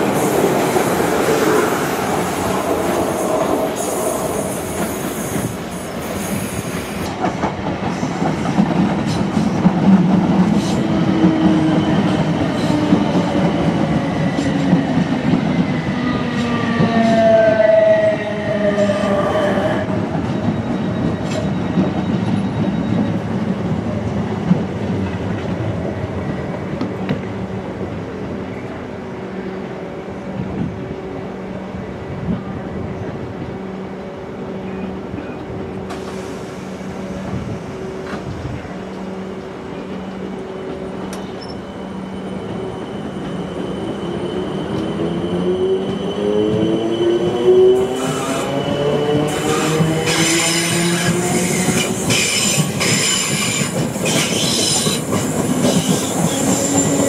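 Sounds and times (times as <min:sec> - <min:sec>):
train whine slowing: 0:00.0 - 0:24.6, 0:32.2 - 0:57.0.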